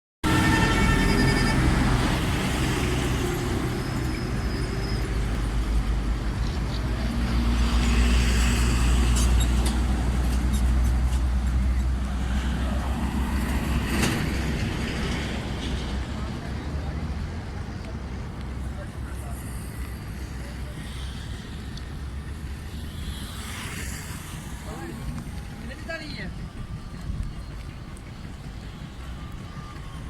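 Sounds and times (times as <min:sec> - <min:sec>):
heavy vehicle engine rumbling: 0:00.2 - 0:22.7.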